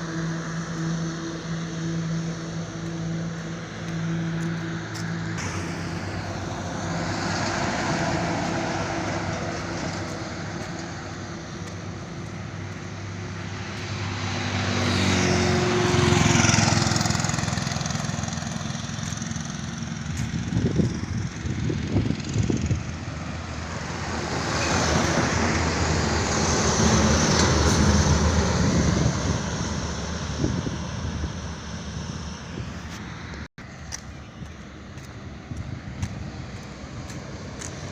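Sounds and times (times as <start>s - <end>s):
vehicle engine running: 0.0s - 24.5s
road noise: 0.0s - 37.9s.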